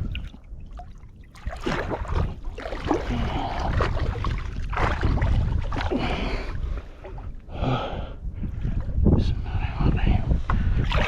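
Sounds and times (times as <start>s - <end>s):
seawater sloshing and splashing: 0.0s - 7.4s, 10.8s - 11.0s
wind on microphone: 0.0s - 11.0s.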